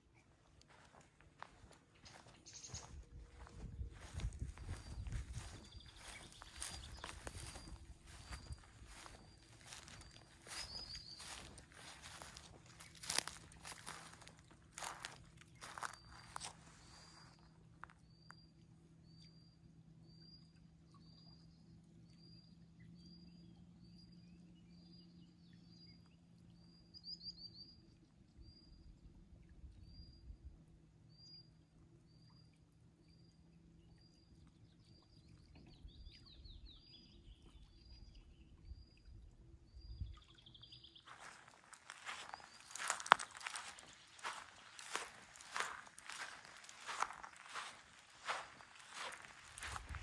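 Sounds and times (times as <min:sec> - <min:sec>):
crunching footsteps: 0:00.6 - 0:18.0, 0:41.1 - 0:50.0
small bird calling: 0:41.1 - 0:50.0.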